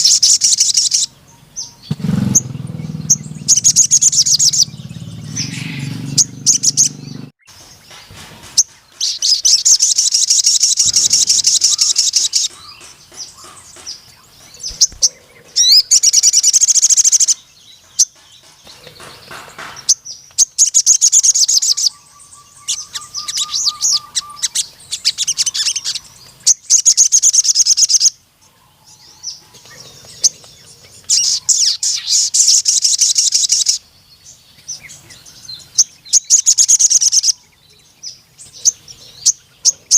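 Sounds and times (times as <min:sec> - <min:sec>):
bird singing fast high trills: 0:00.0 - 0:07.6, 0:08.6 - 0:12.8, 0:14.6 - 0:17.6, 0:19.9 - 0:28.2, 0:31.0 - 0:34.0.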